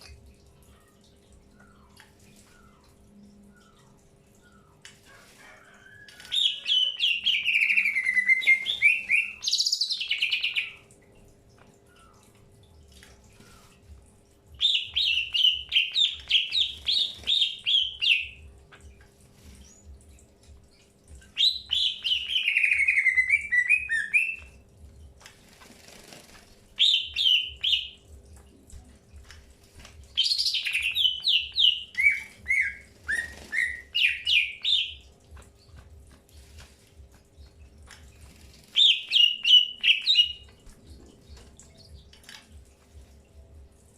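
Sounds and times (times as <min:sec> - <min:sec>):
bird singing chattering notes: 0:14.6 - 0:18.4, 0:30.2 - 0:35.1, 0:38.7 - 0:42.1.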